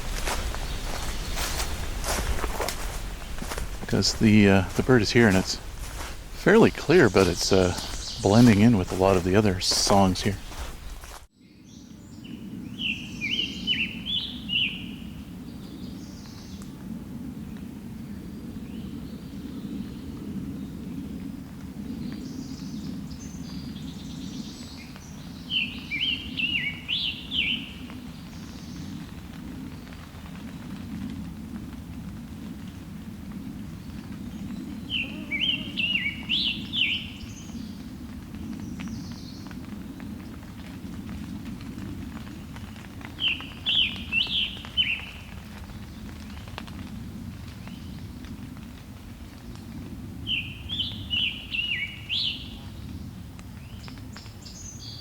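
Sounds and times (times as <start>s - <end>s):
steady low rumble: 0.0s - 11.2s
songbird singing: 0.0s - 16.6s, 22.1s - 29.1s, 33.8s - 37.8s, 42.2s - 45.3s, 50.3s - 53.0s
faint birdsong: 0.0s - 16.7s, 21.9s - 30.8s, 33.4s - 41.6s, 42.2s - 46.5s, 50.3s - 55.0s
bird singing quick phrases: 6.4s - 10.9s, 34.9s - 37.1s.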